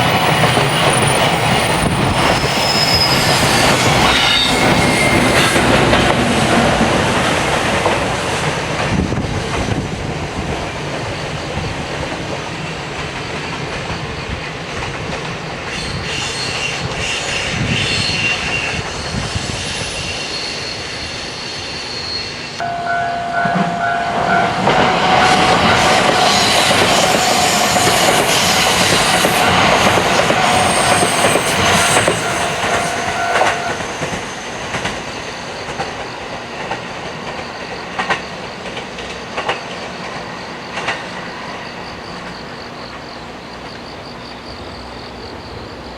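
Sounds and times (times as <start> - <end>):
high-pitched wheel squeal: 0.0 - 6.2, 15.8 - 35.2
train rumble and clickety-clack: 0.0 - 45.9
steady tone: 22.6 - 29.5.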